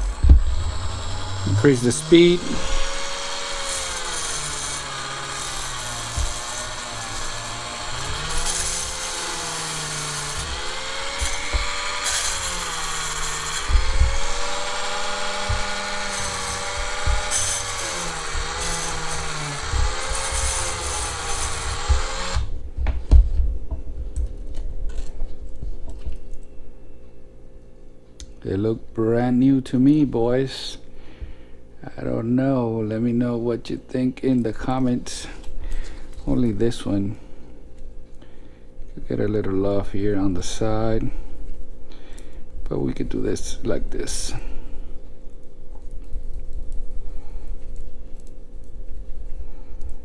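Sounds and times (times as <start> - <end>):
low knocks: 0.0 - 3.0
small power tool whining: 0.0 - 22.6.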